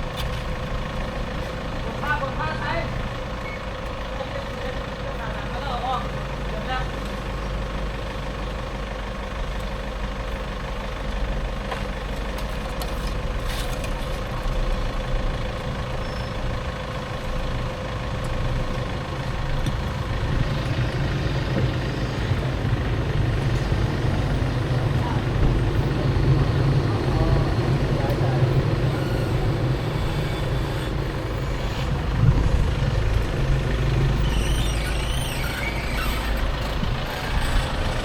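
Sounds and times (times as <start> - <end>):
low engine hum: 0.0 - 38.0.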